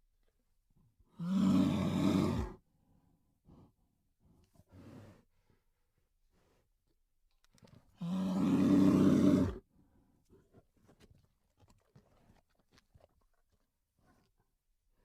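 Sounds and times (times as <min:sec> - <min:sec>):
bear roaring: 0:01.2 - 0:02.6, 0:08.0 - 0:09.6.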